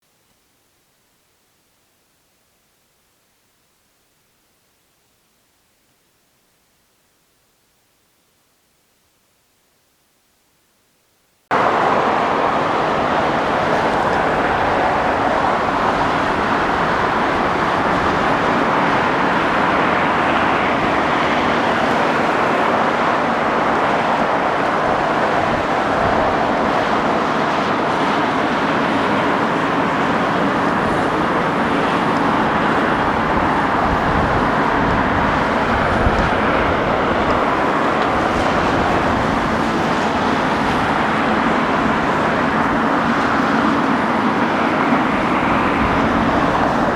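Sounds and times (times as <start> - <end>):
jet engines droning: 11.5 - 46.9.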